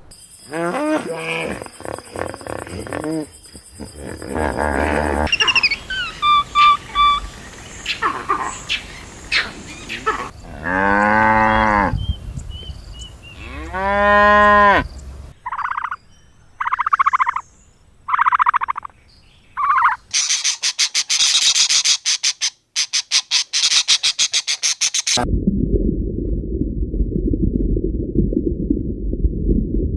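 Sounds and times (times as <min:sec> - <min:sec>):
cow mooing: 0:03.9 - 0:05.3, 0:10.2 - 0:12.0, 0:13.2 - 0:14.9
fast rattling chirr: 0:20.1 - 0:25.2.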